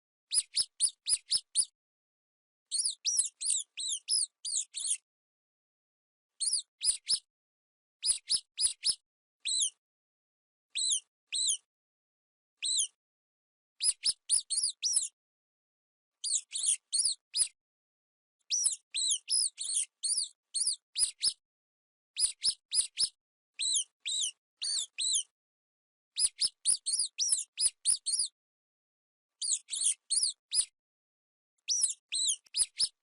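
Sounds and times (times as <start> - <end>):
mice squeaking: 0.3 - 1.7, 2.7 - 5.0, 6.4 - 7.3, 8.0 - 9.8, 10.8 - 11.7, 12.6 - 13.0, 13.8 - 15.2, 16.2 - 17.6, 18.5 - 21.4, 22.2 - 25.3, 26.2 - 28.4, 29.4 - 30.7, 31.7 - 33.0.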